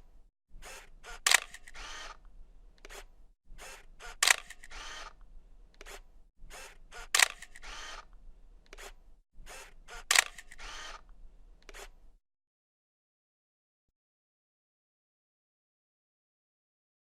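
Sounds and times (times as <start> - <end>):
camera shutter click: 0.7 - 2.2, 2.8 - 5.2, 6.6 - 8.1, 8.7 - 11.9
light camera clicks: 0.7 - 2.2, 3.7 - 5.2, 6.6 - 8.1, 8.7 - 11.9.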